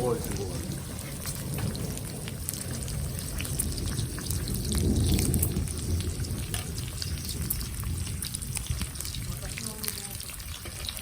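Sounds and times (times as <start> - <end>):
heavy rain pattering: 0.0 - 11.0
thunder rumble: 0.0 - 11.0.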